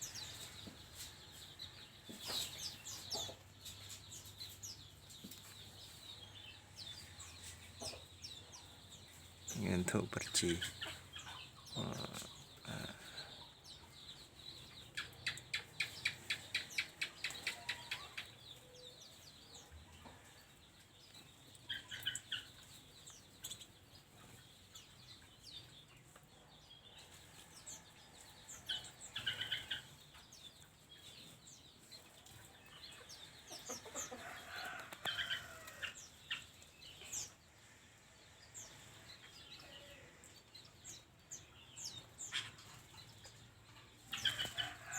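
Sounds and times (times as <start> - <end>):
birds chirping and calling: 0.0 - 44.9.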